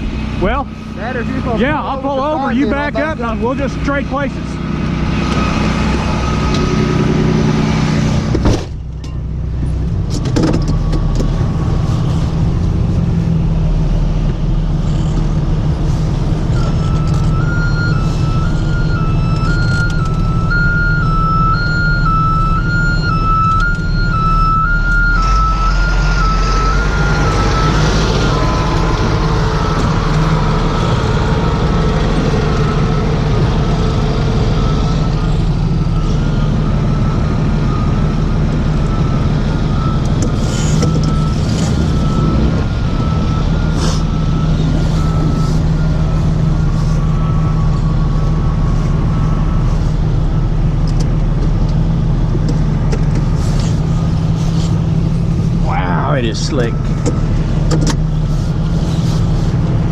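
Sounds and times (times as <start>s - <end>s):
truck engine running: 0.0s - 59.9s
thin high wavering tone: 16.5s - 31.1s.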